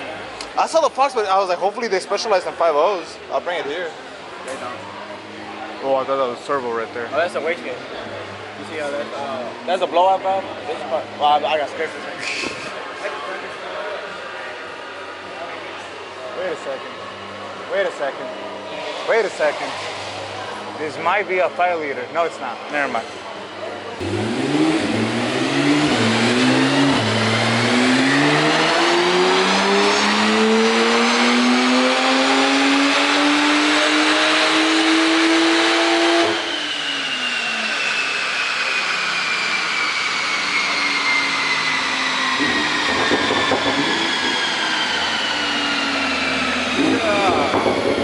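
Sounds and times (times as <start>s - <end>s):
car engine at full throttle: 24.0s - 48.0s
high whine falling in pitch: 24.0s - 48.0s.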